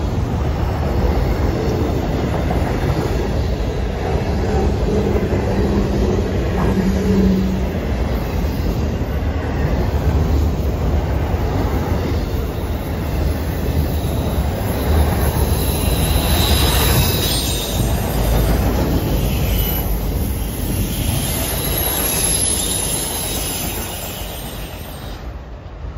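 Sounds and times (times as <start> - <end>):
train wheels rumbling on rail: 0.0 - 25.9
wheel flange squeal: 19.0 - 25.3.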